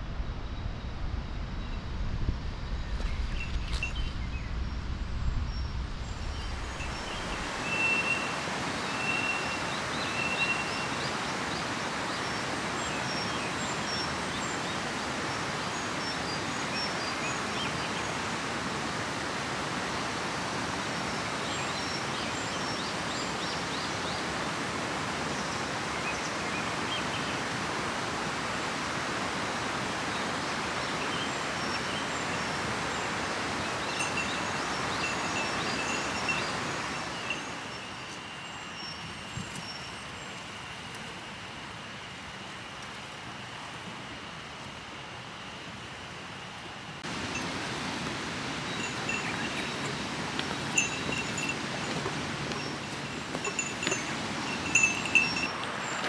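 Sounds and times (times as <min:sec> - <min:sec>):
river flowing: 0:06.5 - 0:38.8, 0:40.0 - 0:56.0
bird calling: 0:47.2 - 0:56.0.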